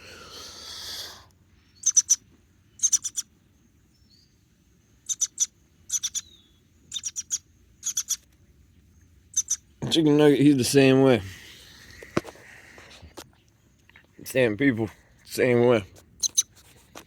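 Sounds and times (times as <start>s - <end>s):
baby bird chirping: 1.6s - 4.4s, 5.0s - 8.3s, 9.2s - 9.8s, 16.2s - 16.6s.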